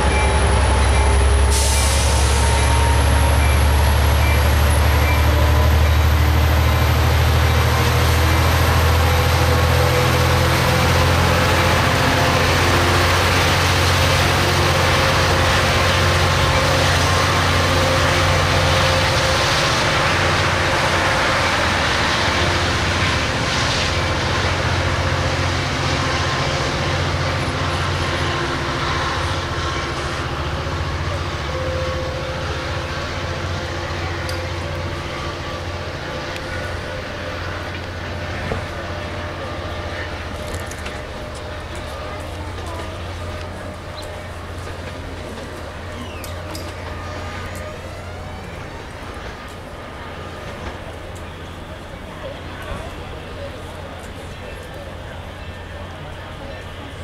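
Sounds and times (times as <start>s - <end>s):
train diesel engine droning: 0.0s - 57.0s
air hiss: 1.4s - 2.6s.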